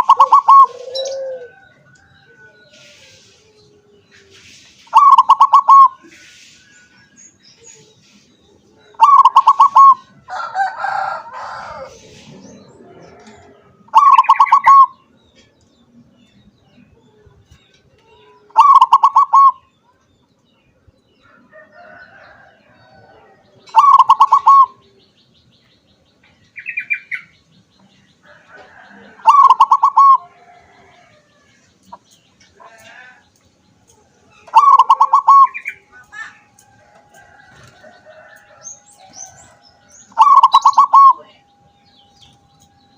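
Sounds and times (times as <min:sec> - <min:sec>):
dove stuttering coo: 0:00.0 - 0:01.9, 0:04.9 - 0:06.2, 0:08.9 - 0:10.2, 0:11.4 - 0:14.9, 0:18.5 - 0:19.6, 0:23.2 - 0:24.8, 0:28.6 - 0:30.9, 0:34.4 - 0:35.7, 0:40.1 - 0:41.2.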